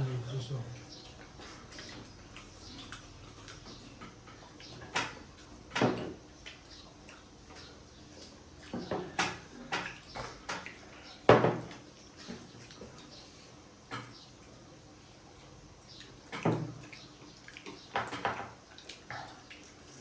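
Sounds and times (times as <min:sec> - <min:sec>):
dishes and cutlery clinking: 0:08.6 - 0:13.0, 0:13.9 - 0:14.2, 0:17.7 - 0:18.6.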